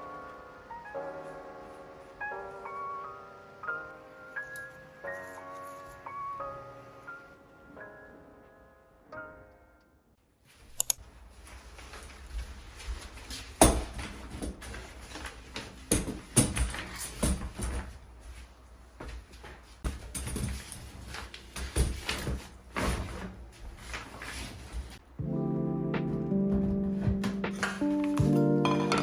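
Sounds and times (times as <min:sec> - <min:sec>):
music: 0:00.0 - 0:10.2, 0:25.2 - 0:29.0.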